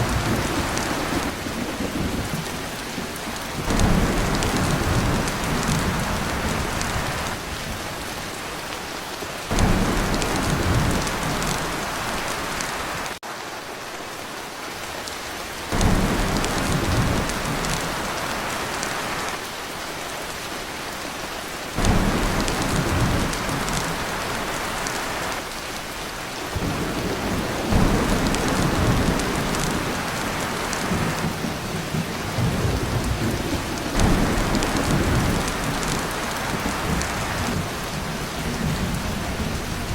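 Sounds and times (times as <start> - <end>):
rolls of thunder: 0.0 - 7.3, 9.5 - 12.1, 26.6 - 39.9
heavy rain on a tin roof: 0.0 - 39.9.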